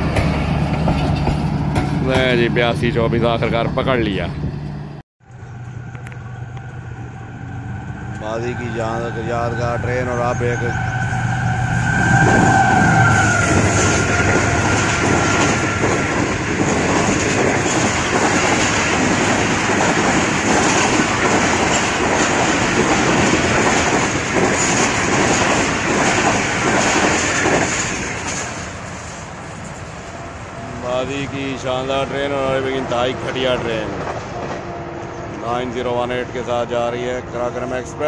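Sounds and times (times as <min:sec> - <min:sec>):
train wheels rattling over rails: 0:00.0 - 0:02.5, 0:12.2 - 0:37.0.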